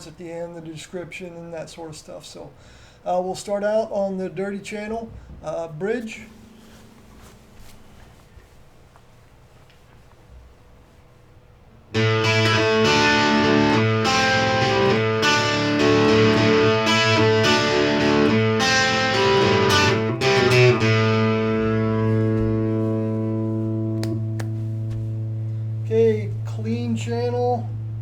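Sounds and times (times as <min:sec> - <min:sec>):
distorted electric guitar riff: 0:12.0 - 0:28.0.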